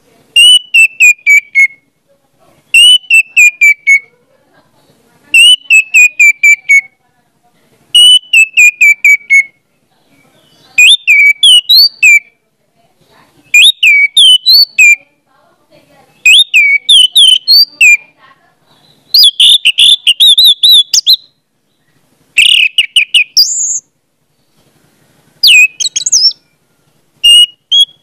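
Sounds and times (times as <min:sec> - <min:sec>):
whistled phrases: 0:00.4 - 0:01.9, 0:02.7 - 0:04.1, 0:05.4 - 0:07.0, 0:08.0 - 0:12.4, 0:13.5 - 0:15.1, 0:16.1 - 0:18.2, 0:18.8 - 0:21.3, 0:22.4 - 0:23.8, 0:25.4 - 0:26.4, 0:27.2 - 0:28.0.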